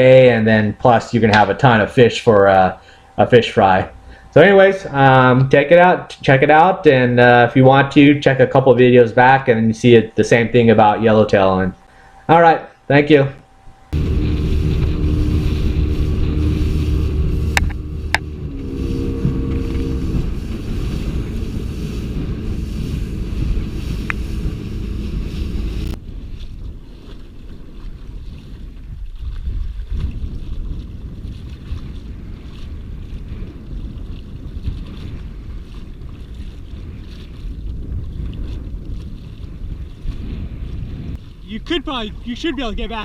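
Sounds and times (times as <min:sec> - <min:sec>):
steady low tones: 0:00.0 - 0:26.0
wind buffeting microphone: 0:13.9 - 0:43.0.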